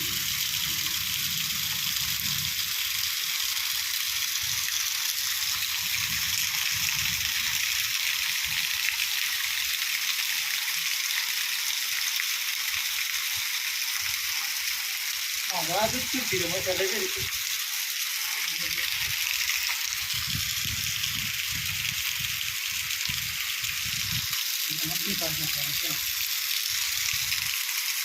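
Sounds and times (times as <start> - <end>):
rain falling: 0.0 - 3.8, 15.5 - 17.4, 24.0 - 26.0.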